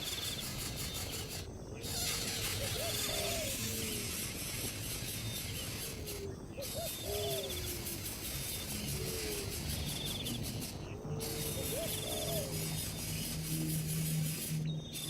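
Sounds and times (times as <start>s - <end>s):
insect-like trills: 0.0s - 15.0s
low hooting bird calls: 5.0s - 8.0s, 8.6s - 13.7s.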